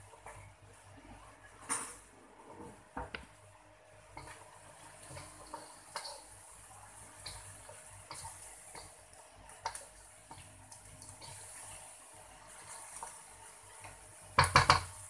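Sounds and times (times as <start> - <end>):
food sizzling in a wok: 2.9 - 15.0
clicks and knocks against wok: 14.4 - 15.0.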